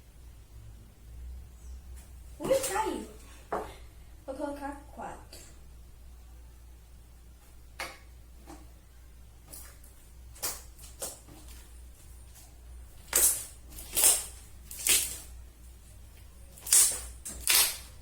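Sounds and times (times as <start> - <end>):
slime squishing by hand: 9.4 - 18.0.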